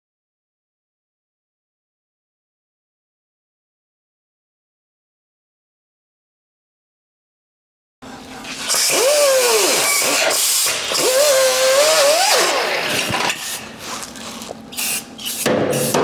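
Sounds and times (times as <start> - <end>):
power drill motor whine: 8.5 - 14.6
hiss: 14.8 - 16.0.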